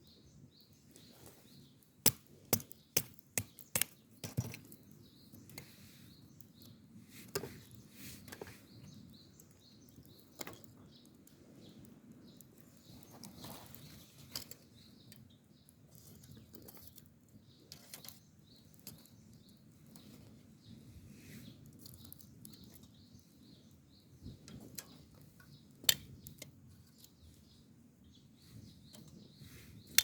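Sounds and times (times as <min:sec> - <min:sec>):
campfire crackling: 0:00.0 - 0:30.0
sharp pops of fire: 0:02.0 - 0:04.7.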